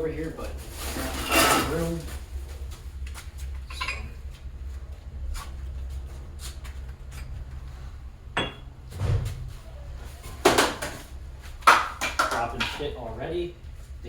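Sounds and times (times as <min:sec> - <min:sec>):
steady low hum: 0:00.0 - 0:14.0
objects knocking and clattering: 0:08.4 - 0:12.8.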